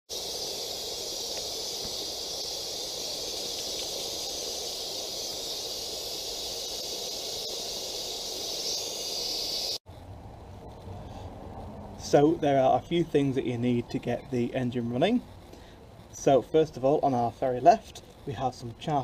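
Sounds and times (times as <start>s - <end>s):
steam hissing: 0.1s - 9.8s, 12.0s - 19.0s.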